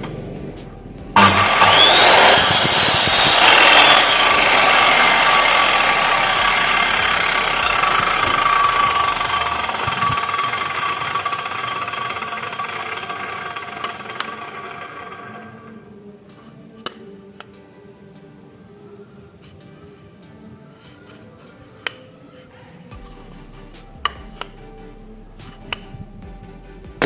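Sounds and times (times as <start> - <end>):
power tool motor whining: 1.2 - 15.7.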